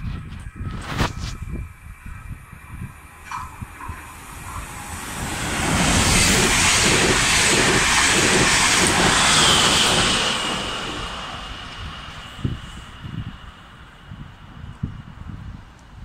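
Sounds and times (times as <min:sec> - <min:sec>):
train wheels on rails: 0:02.8 - 0:16.0.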